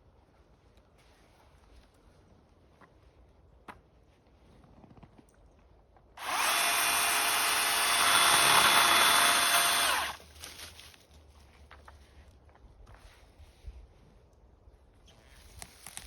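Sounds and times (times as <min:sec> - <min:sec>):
power tool motor whining: 0:06.2 - 0:10.2.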